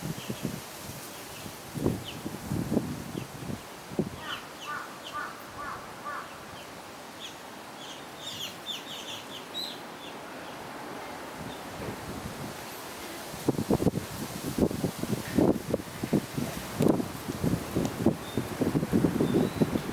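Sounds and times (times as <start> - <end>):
steady outdoor hiss: 0.0 - 19.9
birds chirping: 4.2 - 11.7, 19.2 - 19.9.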